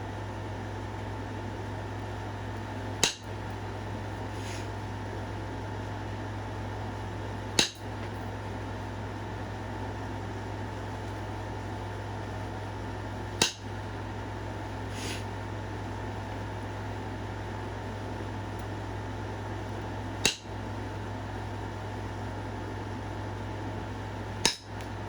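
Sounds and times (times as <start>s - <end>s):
fan-like hum: 0.0s - 25.0s
stone strikes clicking: 3.0s - 3.3s, 7.6s - 7.9s, 13.4s - 13.7s, 20.2s - 20.5s, 24.4s - 24.9s.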